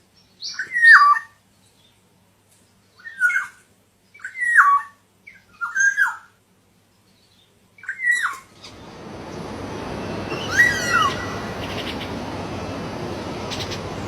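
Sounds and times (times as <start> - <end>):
rushing noise: 8.5 - 14.0
bird whistled calls: 10.0 - 12.2.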